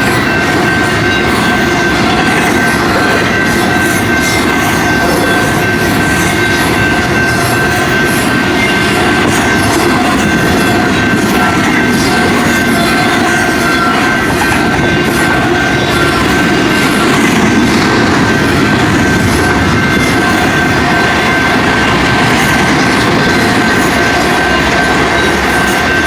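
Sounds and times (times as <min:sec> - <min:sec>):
train wheels rattling on rails: 0:00.0 - 0:26.0.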